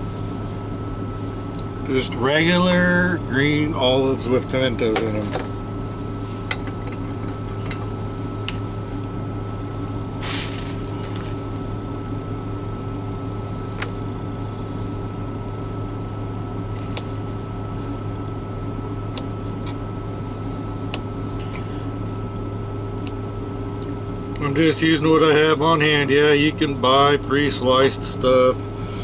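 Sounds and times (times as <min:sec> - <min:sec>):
low mechanical hum: 0:00.0 - 0:29.0
brief rustle: 0:10.2 - 0:11.4.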